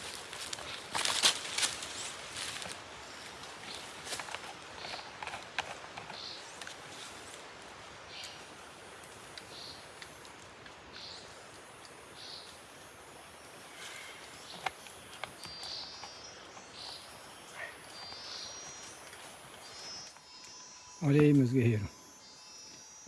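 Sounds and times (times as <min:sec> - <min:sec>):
insects hissing: 0:00.0 - 0:23.0.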